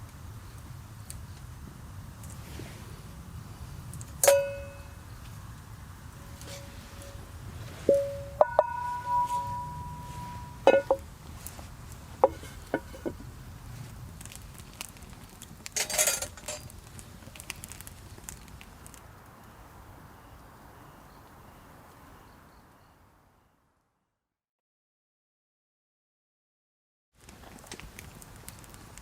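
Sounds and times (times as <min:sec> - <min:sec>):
cookware clinking: 0:04.2 - 0:04.8, 0:07.8 - 0:11.0.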